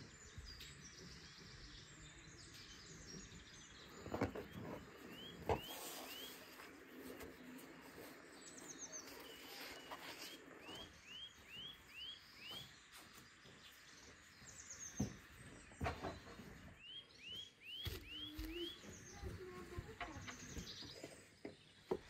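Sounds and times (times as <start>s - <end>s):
birds chirping: 0.0s - 22.0s
rustle of pastry sheets: 5.6s - 11.0s.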